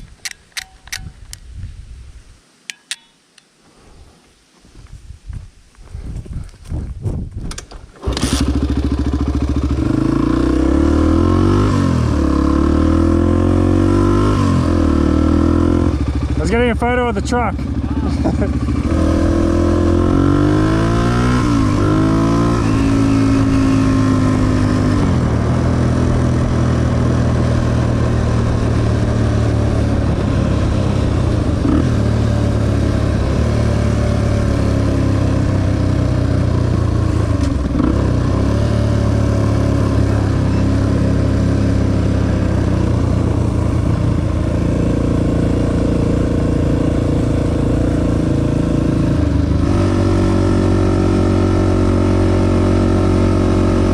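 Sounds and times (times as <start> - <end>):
dirt bike engine accelerating: 8.0 - 53.9.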